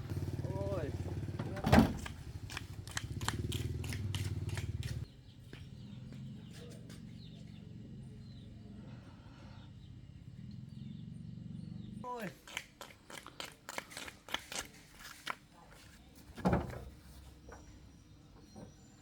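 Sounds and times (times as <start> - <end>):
vehicle engine knocking: 0.0 - 5.1.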